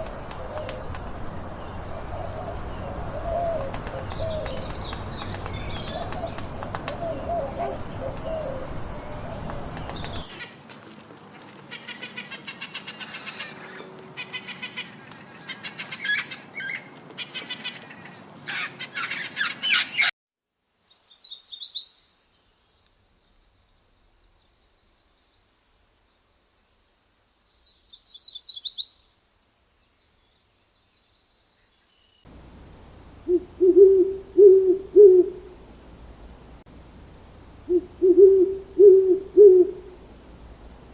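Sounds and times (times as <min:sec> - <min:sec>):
owl hooting: 0:00.0 - 0:01.0, 0:02.0 - 0:10.4, 0:33.2 - 0:35.6, 0:37.6 - 0:40.0.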